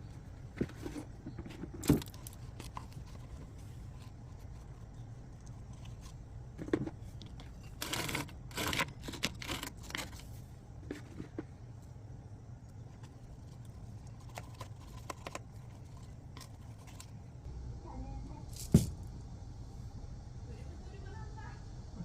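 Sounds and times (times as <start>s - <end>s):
rustling and crinkling handling noise: 0.0s - 12.0s, 12.8s - 17.4s
steady low hum: 0.0s - 22.0s.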